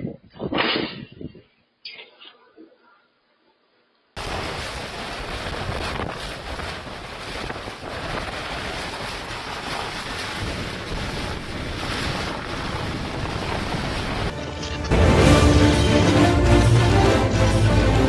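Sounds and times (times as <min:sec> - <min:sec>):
strong wind buffeting microphone: 0:00.0 - 0:01.6, 0:04.5 - 0:14.9.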